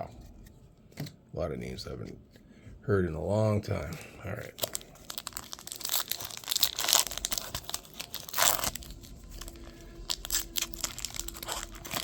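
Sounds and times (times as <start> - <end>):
wrapper tearing and crinkling: 4.4 - 12.0.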